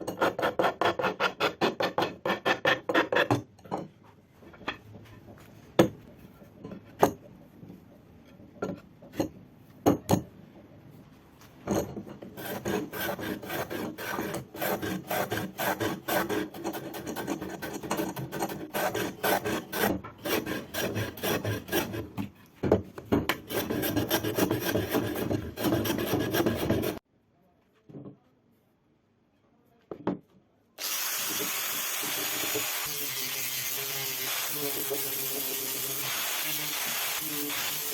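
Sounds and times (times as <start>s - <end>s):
hand rasp scraping wood: 0.1s - 3.3s, 12.3s - 22.3s, 23.3s - 27.0s.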